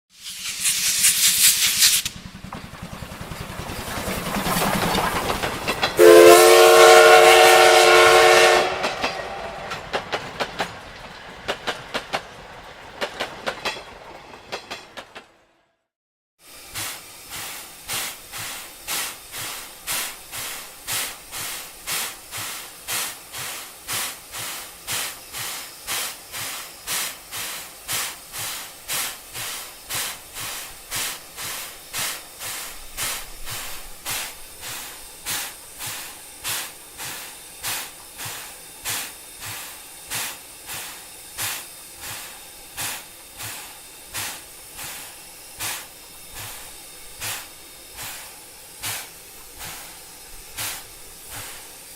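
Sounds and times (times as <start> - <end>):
steam locomotive chuffing: 0.2 - 51.9.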